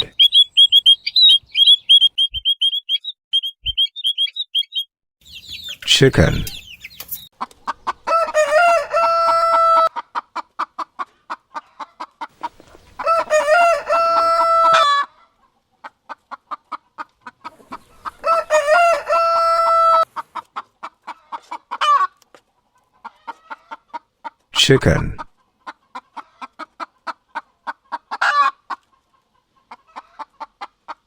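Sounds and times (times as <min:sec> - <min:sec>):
chickens clucking: 0:00.0 - 0:24.5, 0:25.4 - 0:31.0
rooster crowing: 0:08.1 - 0:09.9, 0:13.0 - 0:15.1, 0:18.2 - 0:20.1.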